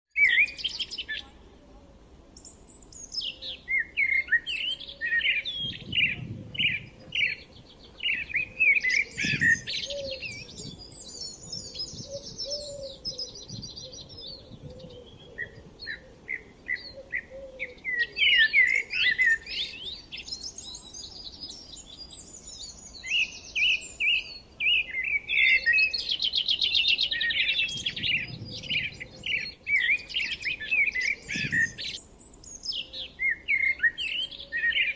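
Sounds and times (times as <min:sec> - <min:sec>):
songbirds chirping and trilling: 0:00.1 - 0:34.9.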